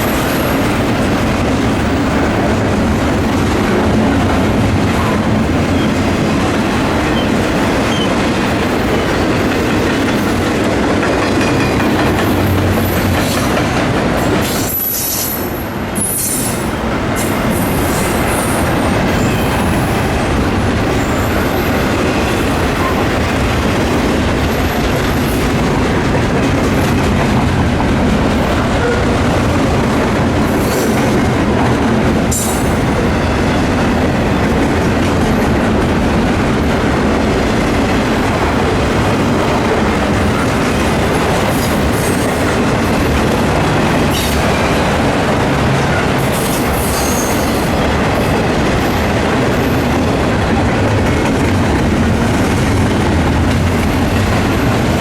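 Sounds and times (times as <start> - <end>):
train wheels clacking over rail joints: 0.0 - 55.0
high wheel squeals: 46.4 - 47.7.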